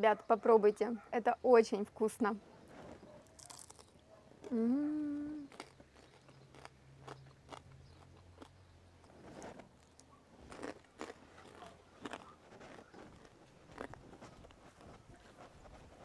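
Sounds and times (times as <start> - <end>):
person chewing crisp food: 3.0 - 16.0.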